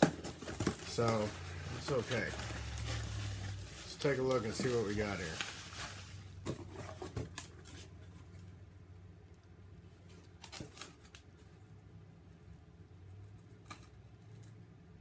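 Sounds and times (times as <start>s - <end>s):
cardboard package rustling: 0.0s - 8.4s.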